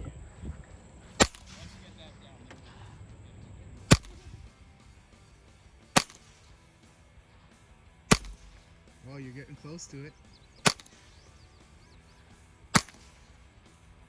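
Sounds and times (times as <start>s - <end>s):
rifle shots cracking: 1.1s - 2.0s, 3.9s - 4.3s, 5.8s - 6.6s, 8.1s - 8.8s, 10.6s - 11.2s, 12.7s - 13.6s.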